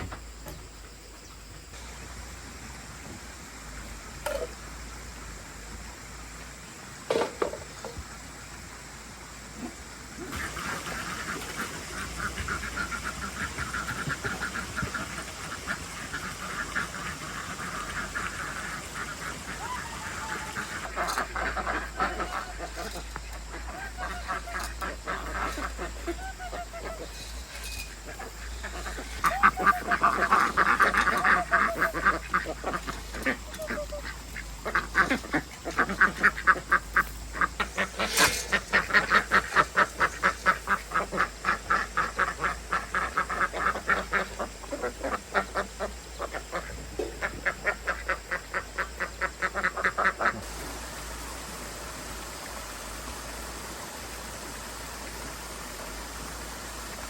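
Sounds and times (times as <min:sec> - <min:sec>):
ducks quacking: 0:09.6 - 0:50.5.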